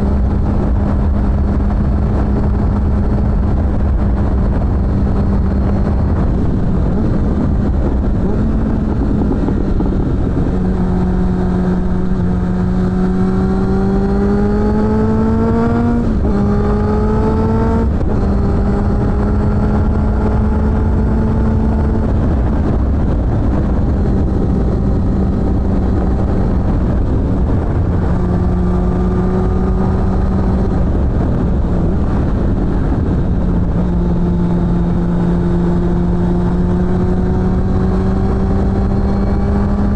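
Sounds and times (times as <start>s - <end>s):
motorcycle engine accelerating: 0.0s - 39.9s
wind noise rumble: 0.0s - 39.9s.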